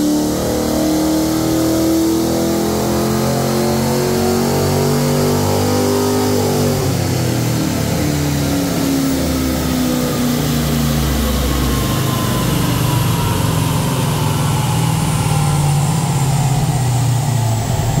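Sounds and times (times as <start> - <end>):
car engine idling: 6.8 - 18.0
high whine of spinning rollers: 10.5 - 18.0.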